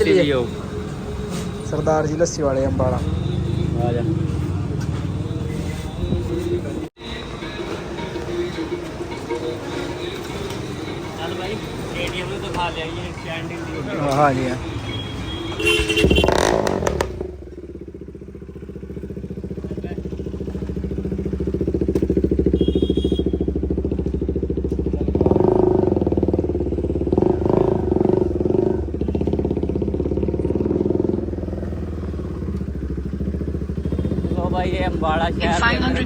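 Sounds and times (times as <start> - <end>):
motorcycle engine revving: 0.0 - 6.9, 8.6 - 36.0.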